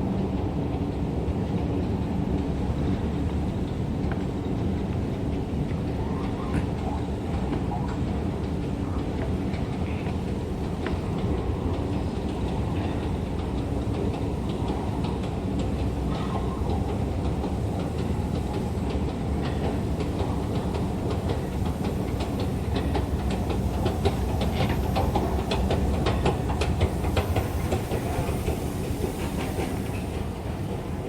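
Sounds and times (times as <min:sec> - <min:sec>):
train rumbling on rails: 0:00.0 - 0:31.0.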